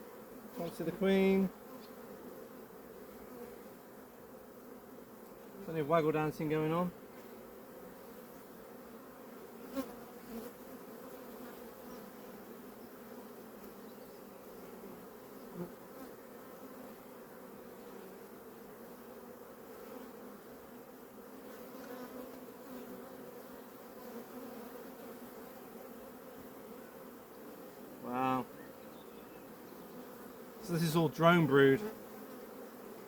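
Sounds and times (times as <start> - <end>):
honeybees humming: 0.0 - 33.0.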